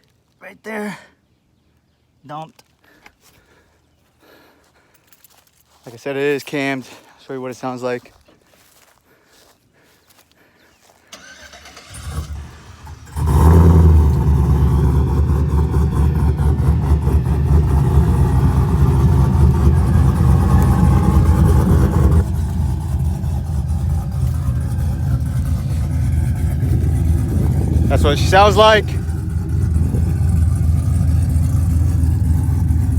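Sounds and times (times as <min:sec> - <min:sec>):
truck engine cranking and idling: 0:11.0 - 0:32.9.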